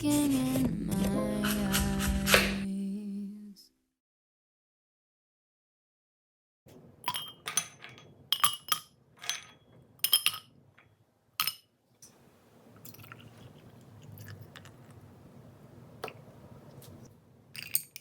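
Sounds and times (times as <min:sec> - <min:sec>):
dishes and glassware clinking: 0:07.0 - 0:11.7.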